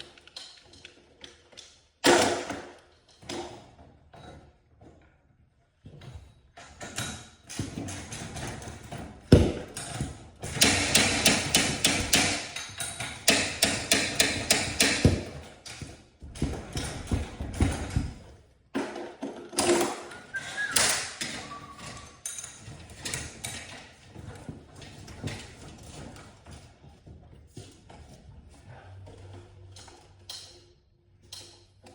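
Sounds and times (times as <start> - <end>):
hand tools knocking and clanking: 6.8 - 26.6.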